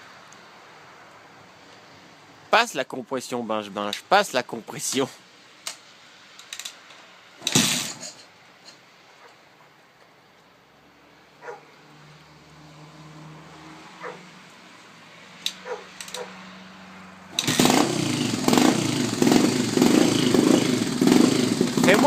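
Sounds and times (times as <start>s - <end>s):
motorcycle engine running unevenly: 17.4s - 22.0s.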